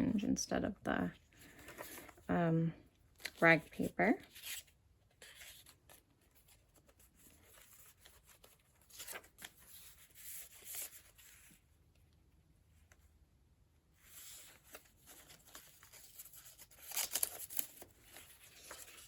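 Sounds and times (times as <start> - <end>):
paper pages rustling: 3.2 - 11.6, 14.0 - 19.0.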